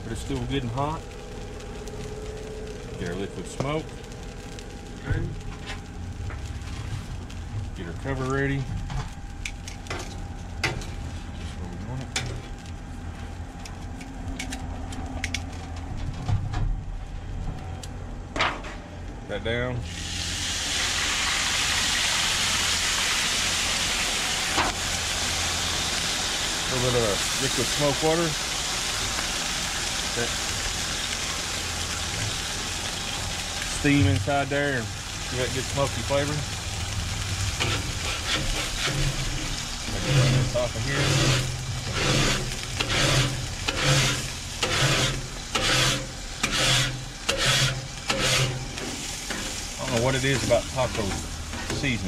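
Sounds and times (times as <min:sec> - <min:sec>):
liquid sizzling on hot griddle: 0:00.0 - 0:15.7, 0:19.8 - 0:52.0
steady low hum: 0:00.0 - 0:52.0
brush scrubbing hot griddle: 0:37.4 - 0:52.0.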